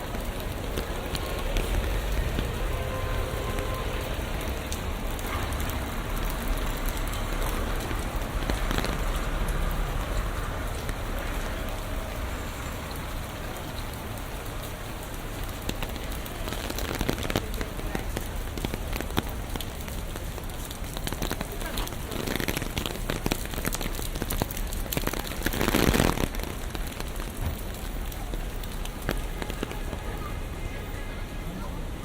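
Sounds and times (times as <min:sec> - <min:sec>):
low steady rumble: 0:00.0 - 0:13.3
rain pattering on surfaces: 0:00.0 - 0:32.0.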